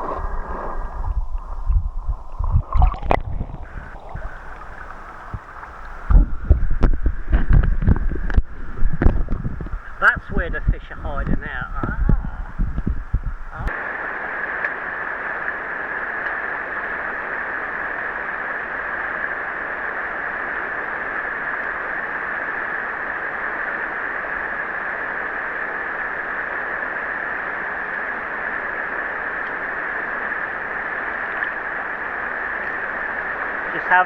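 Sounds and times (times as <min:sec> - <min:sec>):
river water rushing over rocks: 0:00.0 - 0:07.3.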